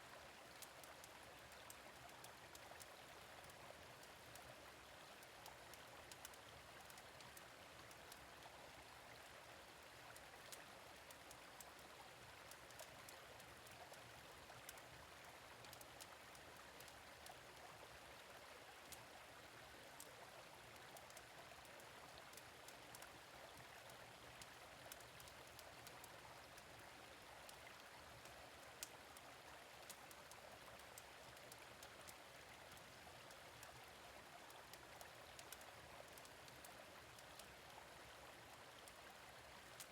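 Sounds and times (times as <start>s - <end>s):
gentle stream running: 0.0s - 39.9s
small sharp crackles: 34.5s - 37.5s.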